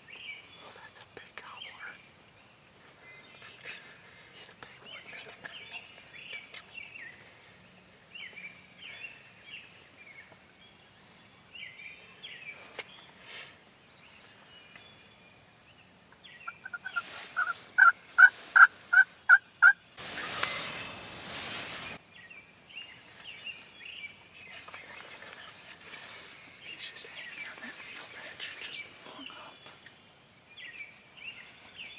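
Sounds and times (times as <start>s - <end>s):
faint bird chirps: 0.0s - 31.9s
wild turkey calling: 16.1s - 21.2s
rustling noise: 16.7s - 19.2s, 20.0s - 22.0s, 24.6s - 29.2s.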